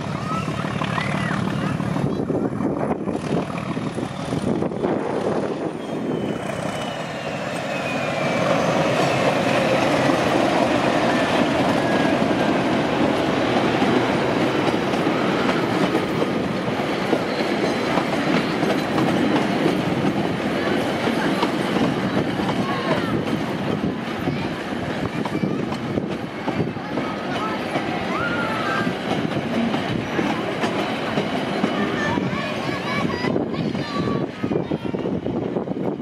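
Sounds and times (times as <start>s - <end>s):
diesel locomotive passing: 0.0s - 36.0s
faint wheel squeal: 5.7s - 9.5s.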